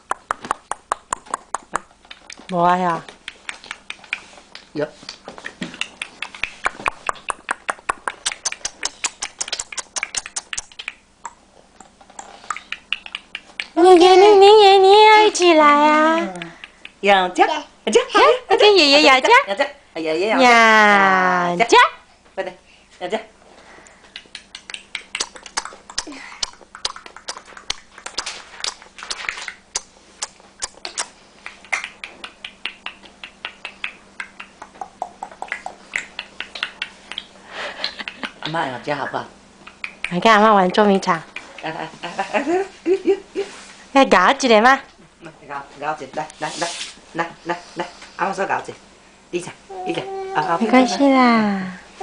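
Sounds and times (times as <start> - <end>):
rapid mouth clicking: 0.0 - 13.8, 16.2 - 17.0, 23.8 - 38.6, 39.6 - 40.2, 41.3 - 41.8
baby squeaky vocal sounds: 49.7 - 51.0.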